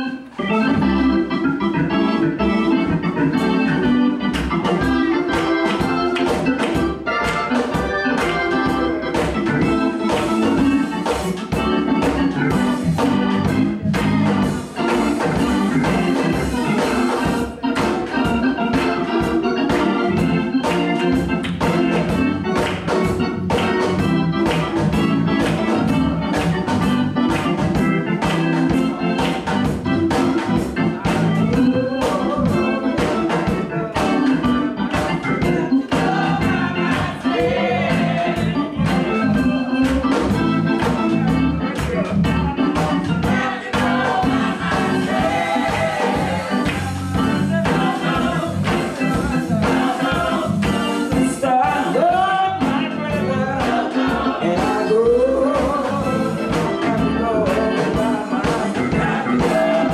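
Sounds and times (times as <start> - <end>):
organ chords: 0.0 - 59.9
steady drum beat: 3.3 - 59.9
choir singing: 14.4 - 20.5, 31.5 - 34.5, 35.3 - 40.3, 42.8 - 59.9.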